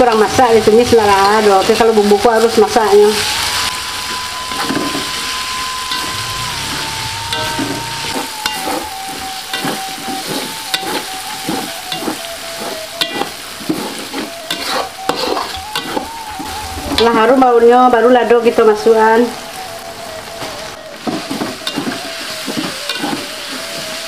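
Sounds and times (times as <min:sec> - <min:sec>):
paste sizzling in oil: 0:00.0 - 0:17.3, 0:18.8 - 0:24.0
metal spatula scraping wok: 0:00.0 - 0:17.4.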